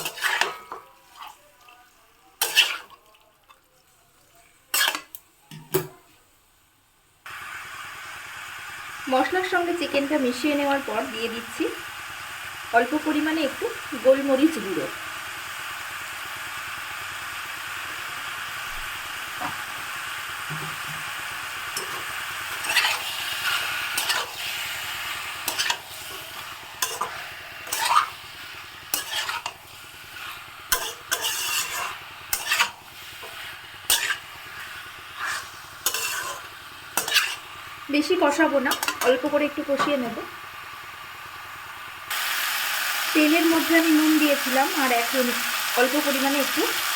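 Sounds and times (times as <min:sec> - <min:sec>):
spatula scraping pan: 0:00.0 - 0:01.4, 0:02.4 - 0:03.1, 0:04.7 - 0:05.2, 0:21.8 - 0:37.6
chicken sizzling in oil: 0:00.0 - 0:05.5, 0:07.2 - 0:46.9.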